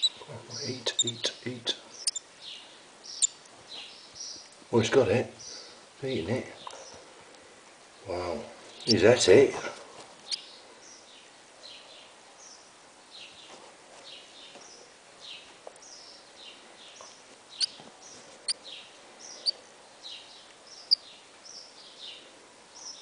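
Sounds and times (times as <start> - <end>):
nestling bird peeping: 0.0 - 4.5, 10.2 - 11.1, 14.4 - 22.2.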